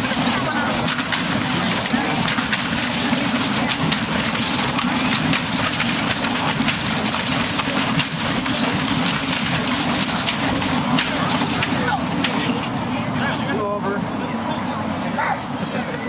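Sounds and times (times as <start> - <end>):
crackly noise: 0.0 - 12.8.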